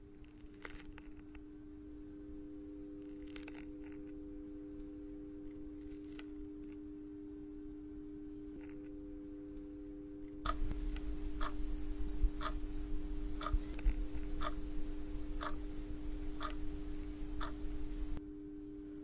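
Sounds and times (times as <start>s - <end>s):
steady low hum: 0.0s - 19.0s
clock ticking: 10.5s - 18.2s.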